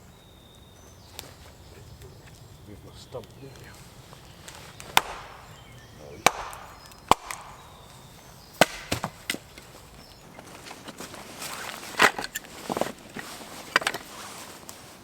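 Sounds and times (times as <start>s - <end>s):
axe chopping wood: 4.8s - 9.7s.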